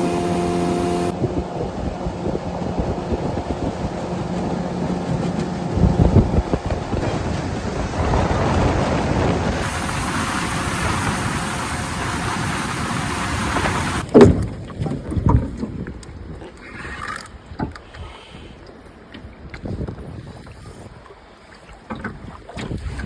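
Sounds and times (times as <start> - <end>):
outboard motor running: 0.0 - 14.1
wind buffeting microphone: 0.0 - 16.4, 19.4 - 21.0
water noise: 0.0 - 23.0.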